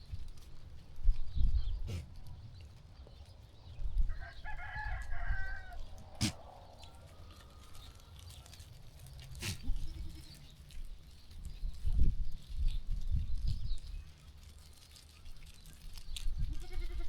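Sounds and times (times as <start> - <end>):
rooster crowing: 4.1 - 5.8.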